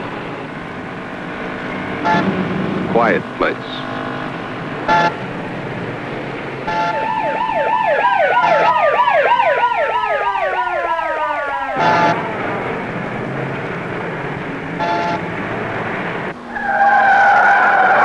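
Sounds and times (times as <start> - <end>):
traffic noise: 0.0 - 18.0
car horn toots: 2.0 - 2.3, 4.9 - 5.2, 6.7 - 7.2, 11.8 - 12.2, 14.8 - 15.3
emergency siren wailing: 4.8 - 6.0, 6.6 - 18.0.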